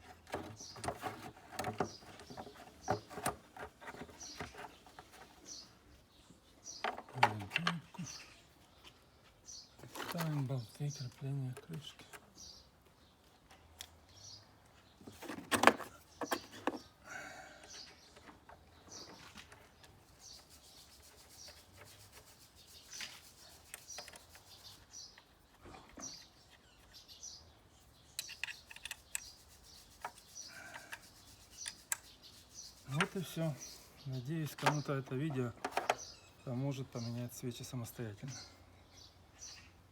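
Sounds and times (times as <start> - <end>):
hand tools clicking and knocking: 0.0 - 5.4, 28.1 - 29.4, 34.5 - 36.1
small birds chirping: 0.0 - 39.9.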